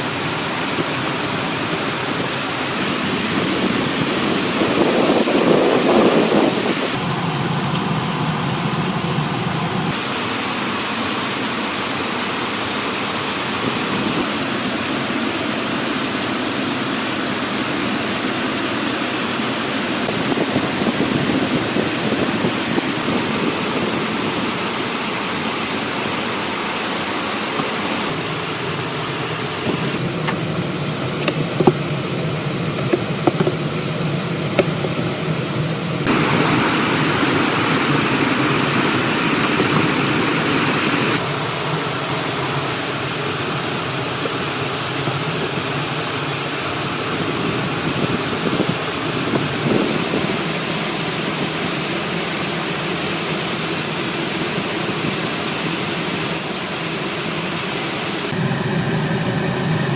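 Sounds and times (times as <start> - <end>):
heavy rain hiss: 0.0 - 59.9
sharp knocks: 32.8 - 33.6.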